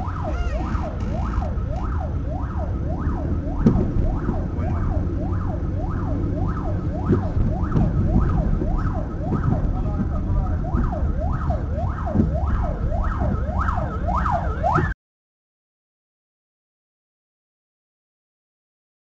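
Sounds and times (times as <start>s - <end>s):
car driving rumble: 0.0s - 14.9s
police siren yelping: 0.0s - 15.0s
thump: 3.6s - 4.4s.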